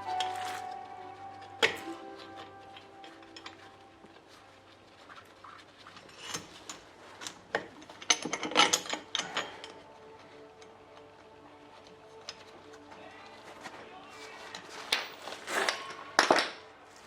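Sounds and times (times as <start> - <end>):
metal tools clicking and clattering: 6.2 - 9.8.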